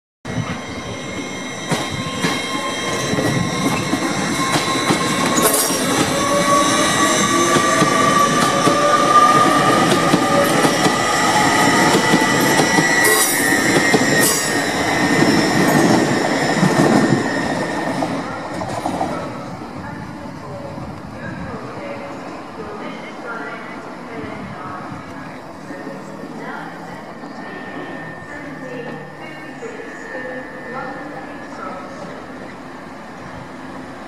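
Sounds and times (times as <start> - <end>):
train wheels rumbling on rail: 0.3 - 30.2
high wheel squeal: 0.4 - 18.3, 27.2 - 30.6.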